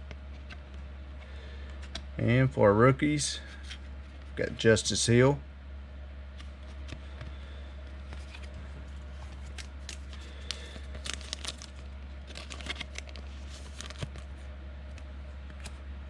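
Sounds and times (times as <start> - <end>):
low electrical hum: 0.0 - 16.0
cards rustling and clicking: 6.4 - 15.8.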